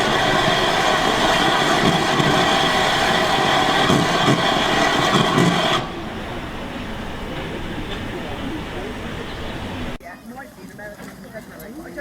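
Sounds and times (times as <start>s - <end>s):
steam hissing with steady tones: 0.0s - 9.1s.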